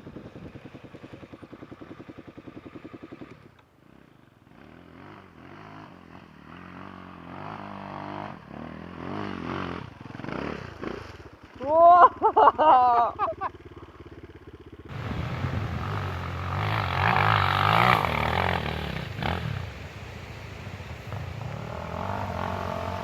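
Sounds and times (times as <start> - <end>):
dirt bike engine: 0.0 - 23.0.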